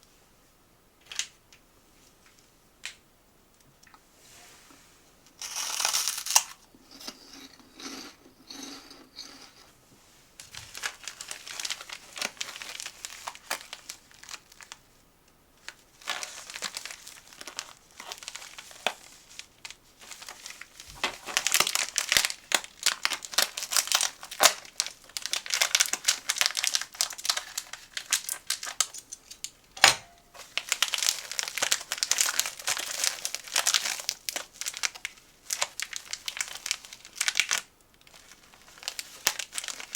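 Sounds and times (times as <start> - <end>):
plastic packaging crinkling: 5.4 - 6.6, 10.4 - 14.9, 15.6 - 39.9.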